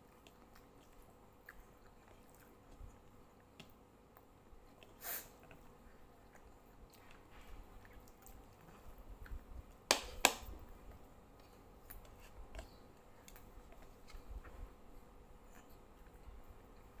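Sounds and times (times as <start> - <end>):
person chewing: 0.0 - 9.9.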